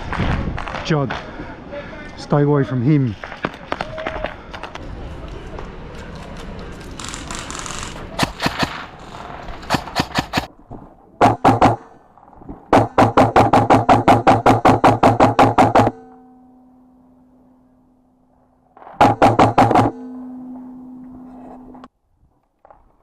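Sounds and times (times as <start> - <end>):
outdoor noise: 0.0 - 23.0
airsoft gun shots: 8.2 - 8.9, 9.7 - 10.5, 11.2 - 11.8, 19.0 - 20.0
fast pitched knocks: 9.7 - 10.5, 19.0 - 20.1
held low tone: 15.3 - 21.9.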